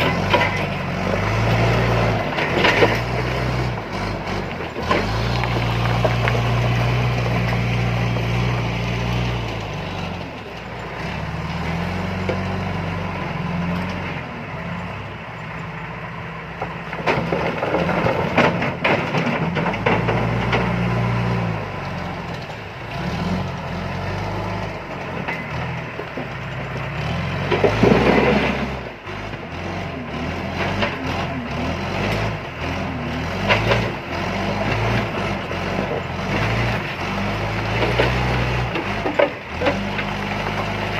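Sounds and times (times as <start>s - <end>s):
rocks clattering and crashing: 0.0s - 3.8s, 4.4s - 10.8s, 16.6s - 21.2s, 25.0s - 28.8s, 33.3s - 40.9s
diesel engine revving: 0.0s - 40.9s.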